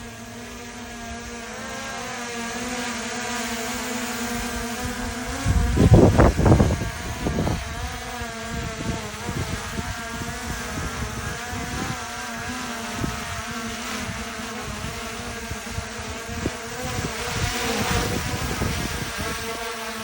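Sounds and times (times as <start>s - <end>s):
drone propellers buzzing: 0.0s - 20.0s
wind buffeting microphone: 4.4s - 19.6s.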